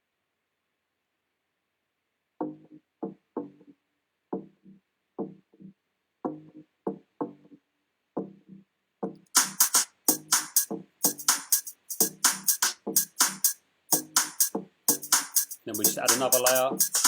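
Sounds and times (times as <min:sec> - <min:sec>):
programmed drum beat: 0:08.2 - 0:17.0
electronic bass line: 0:14.9 - 0:17.0.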